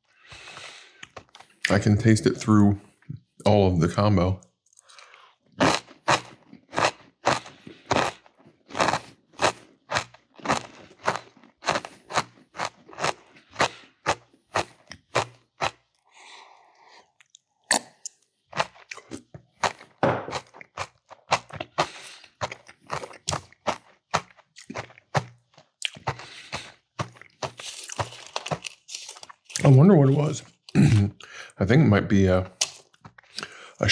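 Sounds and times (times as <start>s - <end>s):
crunchy chewing: 4.7s - 31.3s.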